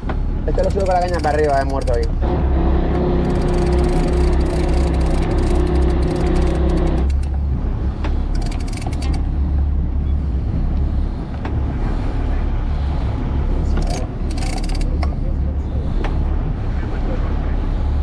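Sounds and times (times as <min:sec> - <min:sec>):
boat engine rumbling: 0:00.0 - 0:18.0
clicks: 0:00.6 - 0:02.2, 0:03.2 - 0:07.4.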